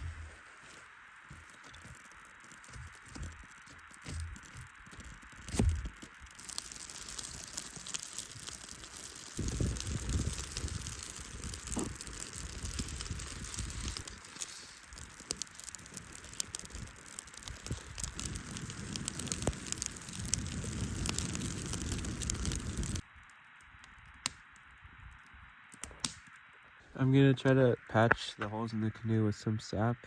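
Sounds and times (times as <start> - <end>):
campfire crackling: 0.0 - 29.9
steady hiss: 0.0 - 30.0
sharp pops: 2.6 - 23.0.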